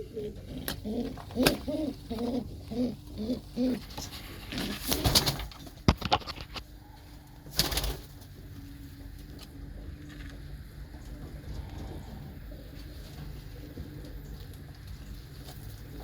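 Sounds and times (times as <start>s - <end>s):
pigeon cooing: 0.0s - 5.1s, 8.3s - 16.0s
rustling: 0.0s - 6.7s.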